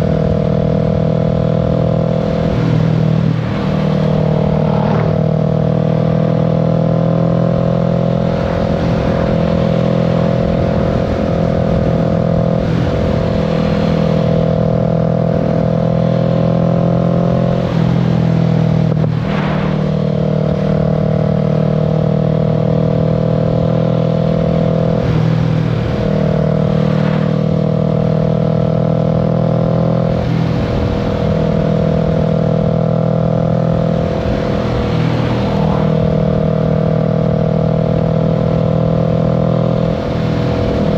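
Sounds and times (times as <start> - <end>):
motorcycle engine cruising: 0.0 - 40.9
wind and road rumble: 0.0 - 40.9.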